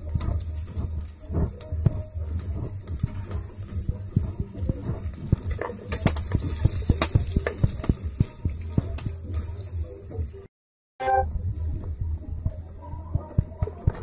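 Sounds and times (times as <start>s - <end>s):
food sizzling and crackling in oil: 0.0s - 10.4s.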